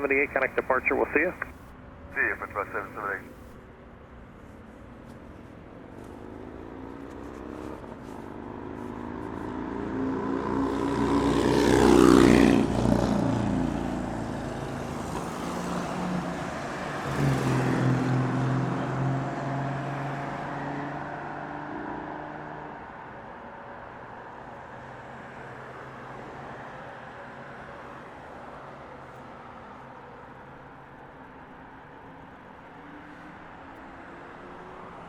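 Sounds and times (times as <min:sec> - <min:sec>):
steady engine hum: 0:00.0 - 0:04.8.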